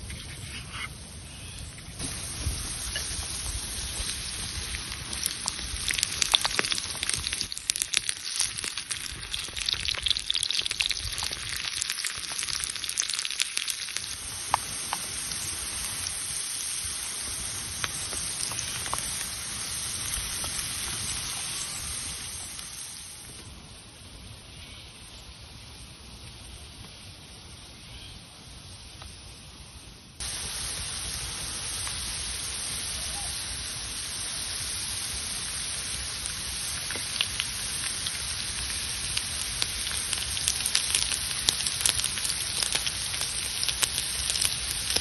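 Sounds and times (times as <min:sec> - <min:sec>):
popping spatter: 0:02.0 - 0:15.4, 0:17.7 - 0:22.8, 0:36.3 - 0:45.0
food sizzling in a pan: 0:02.0 - 0:23.4, 0:30.2 - 0:45.0.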